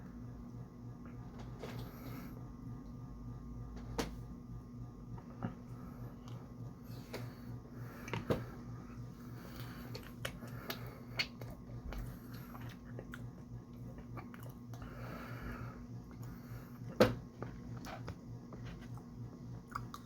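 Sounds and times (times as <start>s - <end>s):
low electrical hum: 0.0s - 20.0s
chewing: 9.6s - 14.8s, 18.8s - 20.0s.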